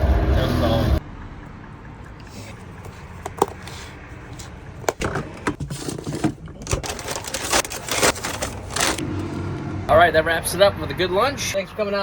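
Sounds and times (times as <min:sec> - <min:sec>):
hands handling objects: 0:02.3 - 0:09.0.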